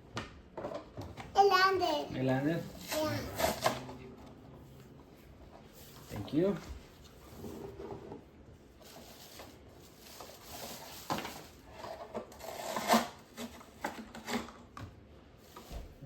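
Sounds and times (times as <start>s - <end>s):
toy trucks and packaging rustling: 2.7s - 4.0s, 5.4s - 14.8s, 15.4s - 16.0s.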